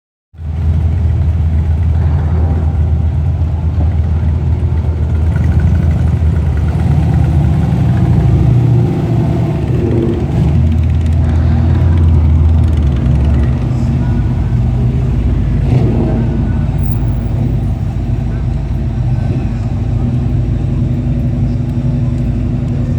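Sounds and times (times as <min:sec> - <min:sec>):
car engine rumbling: 0:00.4 - 0:22.9.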